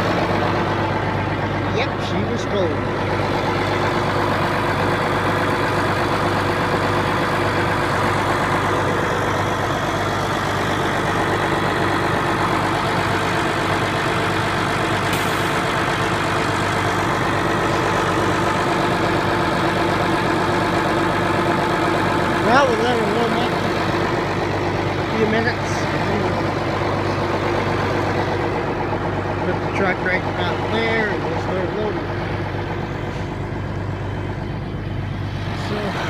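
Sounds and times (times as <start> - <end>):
tractor diesel engine idling: 0.0 - 36.0.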